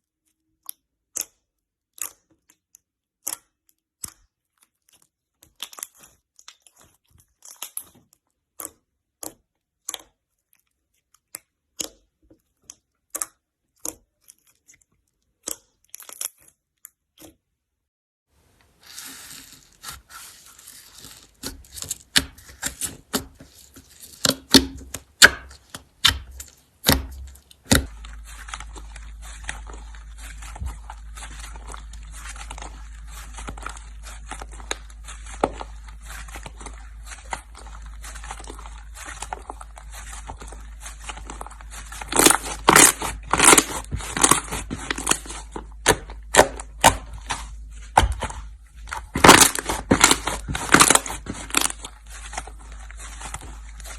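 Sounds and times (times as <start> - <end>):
slime squished by hand: 18.6 - 53.9.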